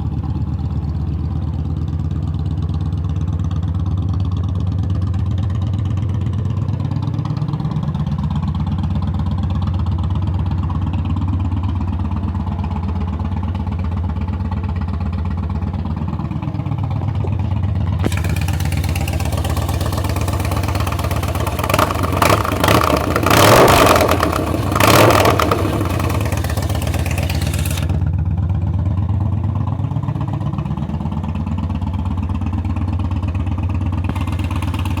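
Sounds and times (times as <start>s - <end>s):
three-wheeler engine running: 0.0s - 35.0s
engine revving: 16.7s - 28.1s, 34.1s - 35.0s.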